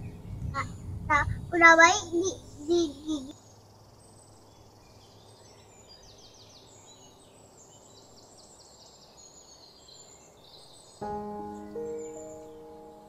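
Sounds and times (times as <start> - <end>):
birds chirping faintly: 0.0 - 13.0
background music with held notes: 11.0 - 13.0.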